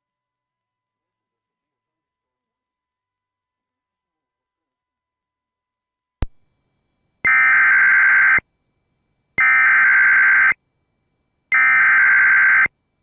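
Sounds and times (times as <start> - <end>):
sharp click: 6.2 - 6.4
screechy digital data tones: 7.3 - 8.4, 11.5 - 12.7.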